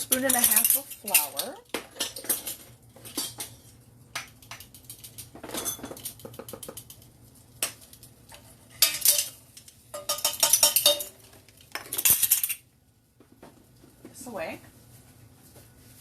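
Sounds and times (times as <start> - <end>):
metal utensils clinking and clattering: 0.0 - 12.6.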